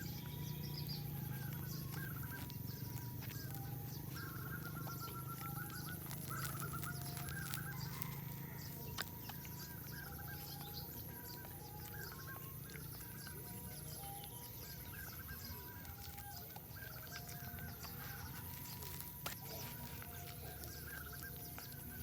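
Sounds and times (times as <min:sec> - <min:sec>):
birds trilled chirps: 0:00.0 - 0:22.0
steady low hum: 0:00.0 - 0:22.0.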